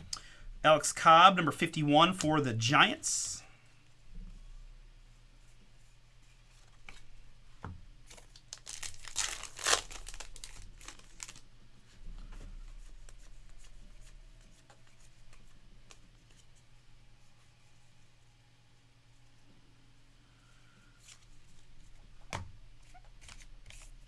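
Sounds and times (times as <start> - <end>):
wrapper tearing and crinkling: 8.1 - 11.5.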